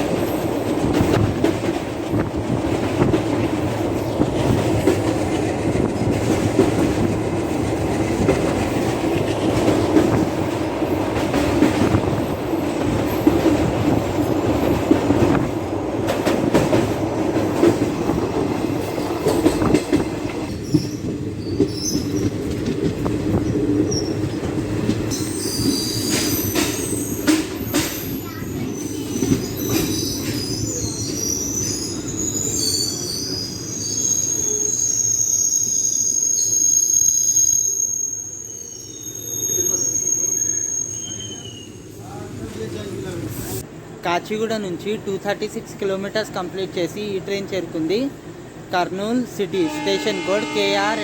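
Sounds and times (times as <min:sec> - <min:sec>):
rail joint clicks: 0:00.0 - 0:33.5
train wheels rumbling on rail: 0:00.0 - 0:35.4.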